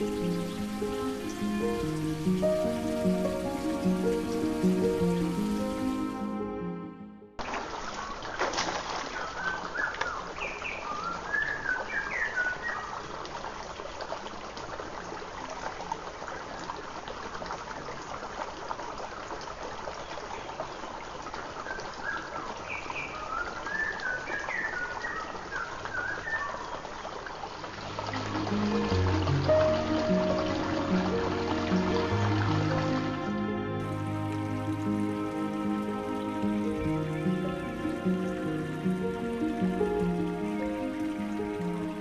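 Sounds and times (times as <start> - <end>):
steady background hiss: 0.0 - 6.4, 27.8 - 42.0.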